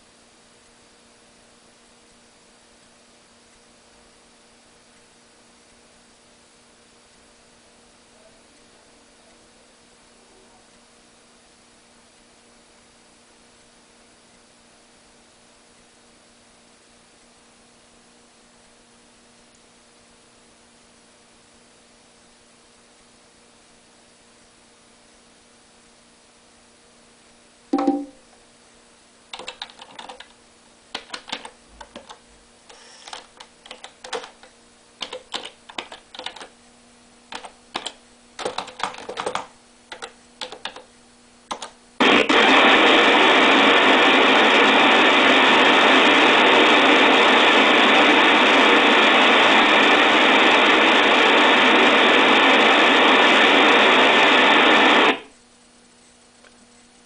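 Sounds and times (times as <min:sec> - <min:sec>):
laptop keys tapping: 0:27.8 - 0:28.2, 0:29.4 - 0:36.5, 0:37.3 - 0:40.9, 0:41.5 - 0:41.8
loud crackling static: 0:29.0 - 0:57.0.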